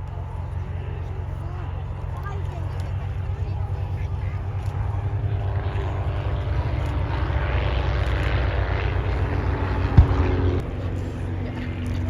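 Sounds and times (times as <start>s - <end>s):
propeller planes droning: 0.0s - 12.0s
low thump: 9.9s - 10.6s.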